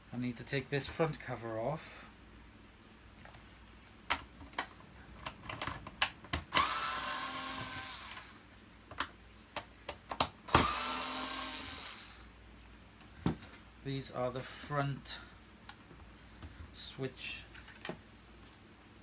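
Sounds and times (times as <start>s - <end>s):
electric screwdriver running: 6.5s - 8.4s, 10.5s - 12.3s.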